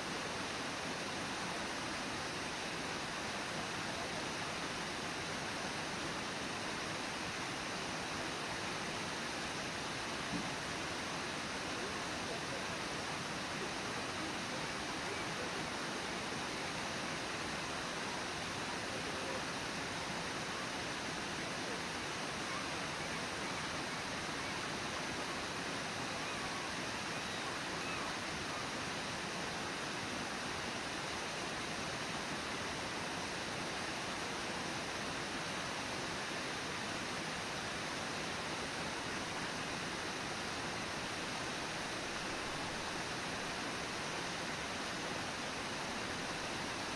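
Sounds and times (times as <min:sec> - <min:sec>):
waterfall roaring: 0:00.0 - 0:46.9.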